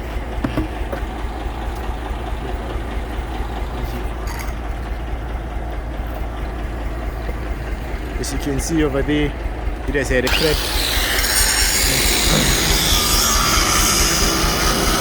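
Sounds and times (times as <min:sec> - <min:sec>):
diesel truck engine idling: 0:00.0 - 0:14.6.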